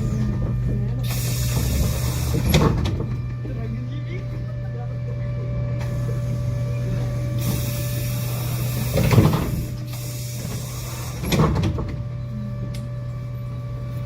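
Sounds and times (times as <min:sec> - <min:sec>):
hiss: 0:07.4 - 0:11.4.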